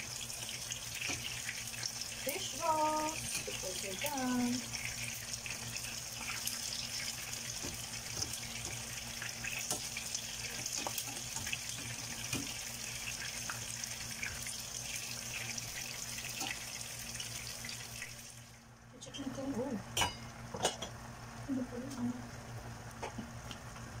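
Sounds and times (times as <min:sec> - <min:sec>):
food sizzling in oil: 0:00.0 - 0:18.6.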